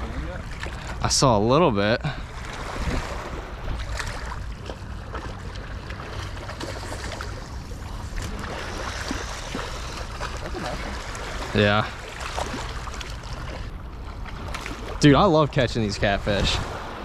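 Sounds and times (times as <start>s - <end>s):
river water: 0.0s - 17.0s
wind rumble on microphone: 2.2s - 11.0s, 13.0s - 17.0s.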